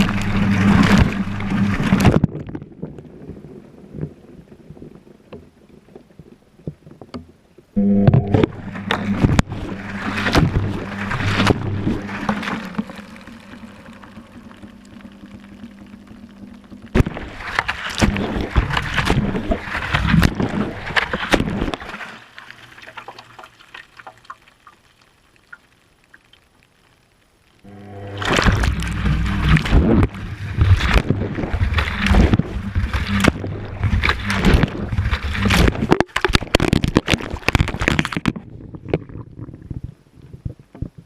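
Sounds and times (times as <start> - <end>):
water sloshing in washing machine: 0.0 - 2.2, 8.3 - 15.3, 17.0 - 24.4, 27.8 - 38.1
low motor hum: 0.0 - 3.0, 7.7 - 22.0, 27.6 - 36.0.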